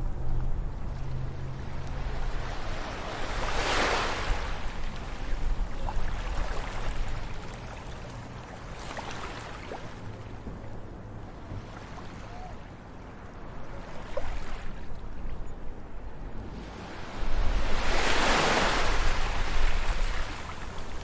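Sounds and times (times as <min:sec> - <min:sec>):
low rumble of the sea: 0:00.0 - 0:21.0
waves breaking on beach: 0:00.9 - 0:10.4, 0:13.4 - 0:15.1, 0:16.5 - 0:21.0.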